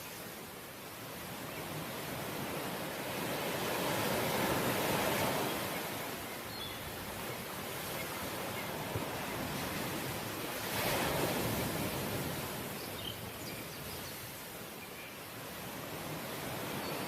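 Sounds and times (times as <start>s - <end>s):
sea waves washing onto shore: 0.0s - 17.0s.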